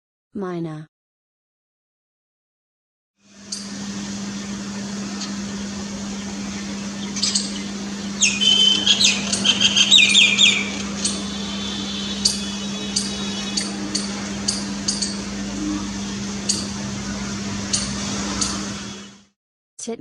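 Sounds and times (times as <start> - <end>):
steady low hum: 3.2 - 19.3
myna chirps and whistles: 5.4 - 11.4.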